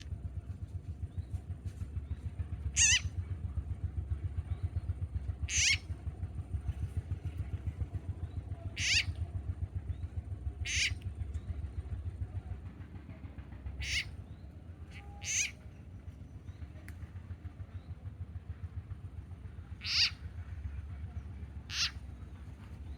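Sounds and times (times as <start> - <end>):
frog screaming: 2.8 - 3.0, 5.5 - 5.8, 8.8 - 9.1, 10.7 - 10.9, 13.8 - 14.0, 15.2 - 15.5, 19.8 - 20.2, 21.7 - 22.0.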